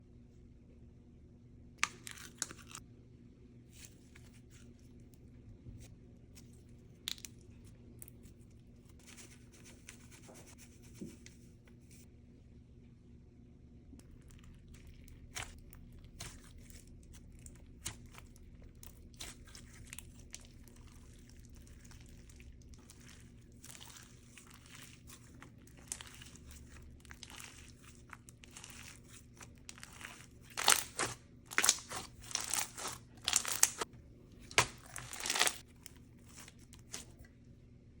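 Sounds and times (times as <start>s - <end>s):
slime crackles and crunches: 1.8s - 2.8s, 14.0s - 37.2s
slime squished by hand: 14.0s - 33.8s, 34.4s - 37.2s.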